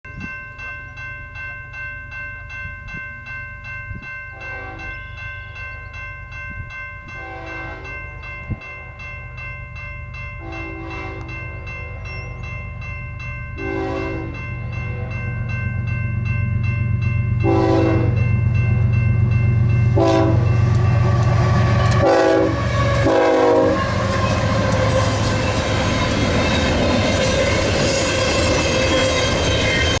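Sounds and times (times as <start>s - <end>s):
bell ringing: 0.1s - 30.0s
locomotive air horn blasts: 4.4s - 4.9s, 7.2s - 7.9s, 10.4s - 12.1s, 13.6s - 15.3s, 17.4s - 18.2s, 20.0s - 25.4s
locomotive engine rumble: 10.5s - 30.0s.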